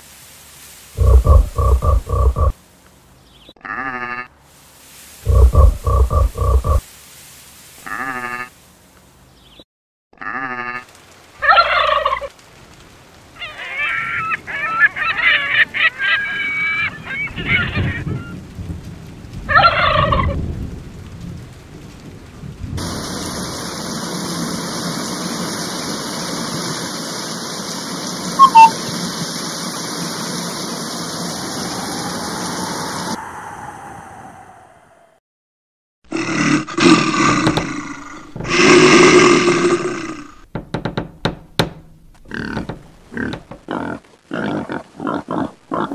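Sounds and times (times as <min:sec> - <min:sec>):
steady rushing noise: 0:22.8 - 0:34.8
honking and gobbling bird calls: 0:28.4 - 0:28.8
sharp call: 0:28.4 - 0:28.8.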